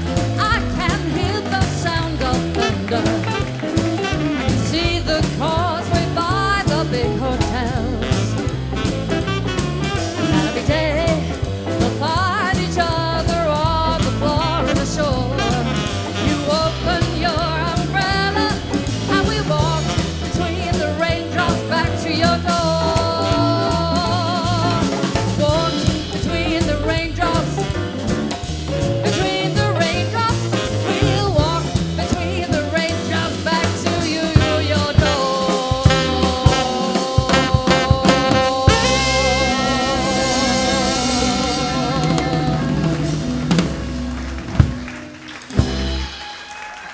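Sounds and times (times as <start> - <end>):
jazz band playing swing: 0.0 - 46.9
sharp drum hits: 34.3 - 46.4.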